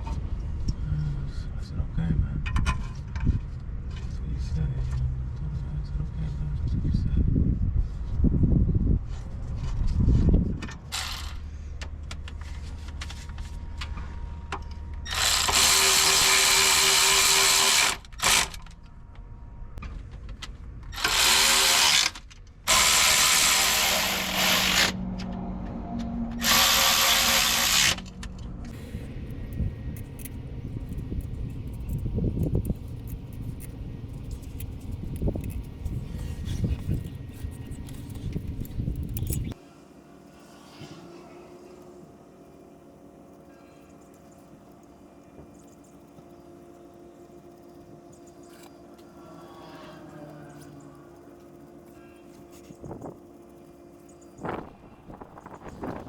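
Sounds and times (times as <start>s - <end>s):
power tool motor whine: 10.8s - 11.4s, 15.0s - 18.7s, 20.9s - 25.0s, 26.3s - 28.2s.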